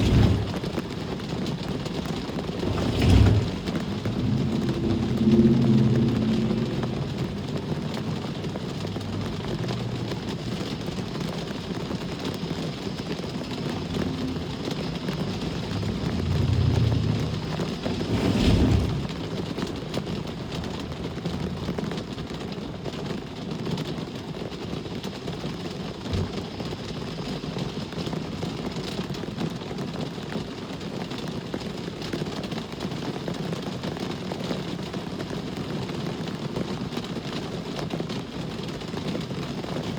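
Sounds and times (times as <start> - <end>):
steady rain hiss: 0.0 - 30.2
vehicles passing on wet road: 0.0 - 30.5.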